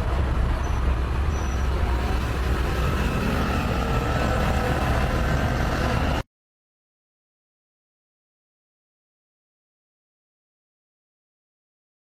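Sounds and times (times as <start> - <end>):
diesel truck engine running: 0.0 - 6.2.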